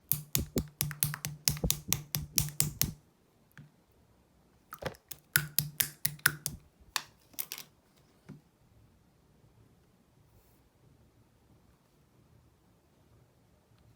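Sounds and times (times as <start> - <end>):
slime clicking and popping: 0.0 - 3.0, 4.8 - 6.6.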